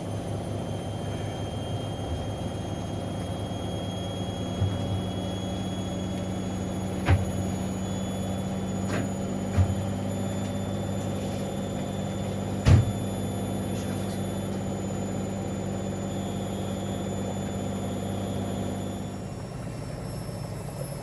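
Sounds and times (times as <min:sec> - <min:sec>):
washing machine motor hum: 0:00.0 - 0:21.0
loud thump: 0:12.6 - 0:13.0.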